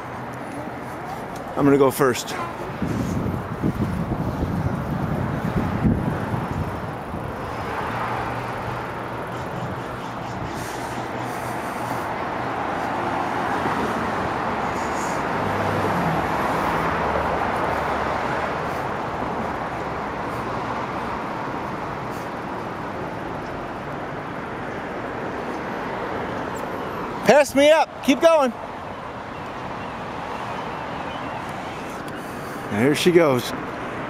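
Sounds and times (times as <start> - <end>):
road traffic rushing past: 0.0 - 34.0
vehicle passing: 0.0 - 34.0
wind rumble on microphone: 2.6 - 7.6.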